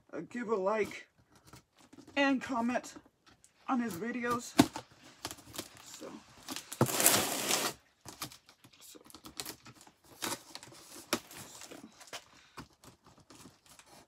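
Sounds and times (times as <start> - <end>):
tape and cardboard handled: 0.8 - 14.0
packing tape ripping: 6.5 - 8.4.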